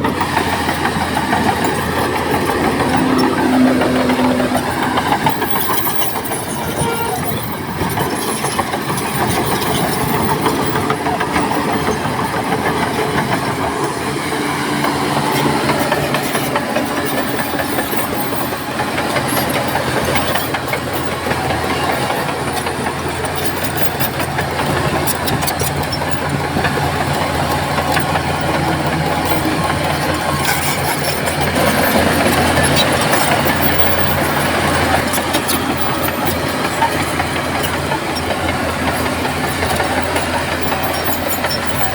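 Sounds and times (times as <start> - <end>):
heavy diesel machinery running: 0.0 - 41.9
metallic clanks and clicks: 14.8 - 41.9.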